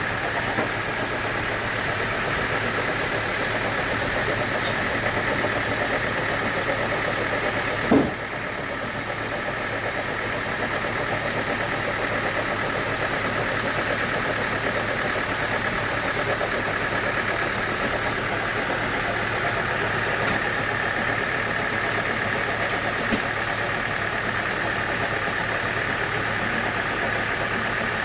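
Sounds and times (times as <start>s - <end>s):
sawmill machinery running: 0.0s - 28.0s.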